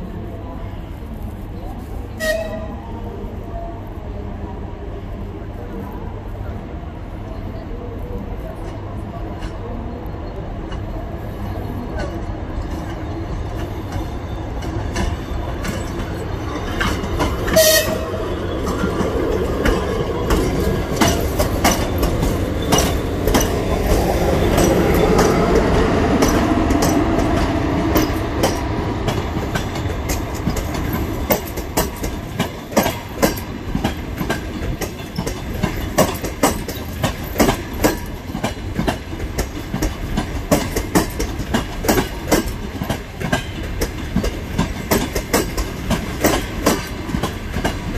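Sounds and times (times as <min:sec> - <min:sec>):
train rumble: 0:00.0 - 0:47.9
train horn blast: 0:02.2 - 0:02.8, 0:17.5 - 0:18.2
train wheels clicking over rail joints: 0:13.6 - 0:47.9.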